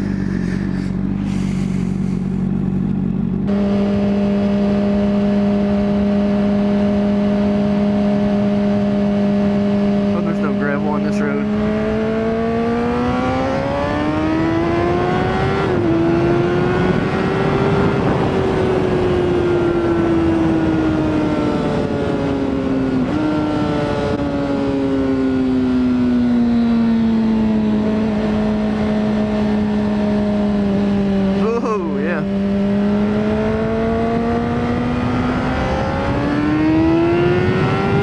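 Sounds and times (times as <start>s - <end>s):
wind rush: 0.0s - 2.4s, 16.8s - 23.7s
motorcycle engine revving: 0.0s - 38.0s.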